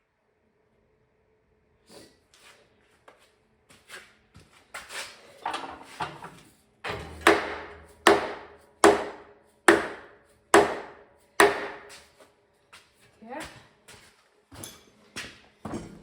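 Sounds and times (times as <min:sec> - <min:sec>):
hard ringing strikes on metal: 0:06.9 - 0:11.9.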